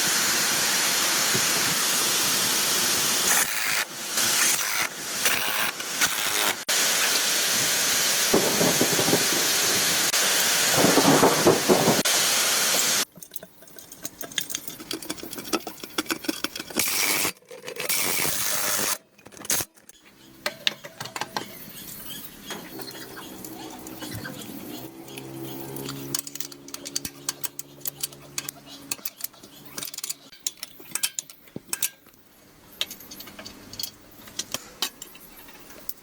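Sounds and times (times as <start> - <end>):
clicks and clatter: 13.1 - 21.6, 25.2 - 32.2.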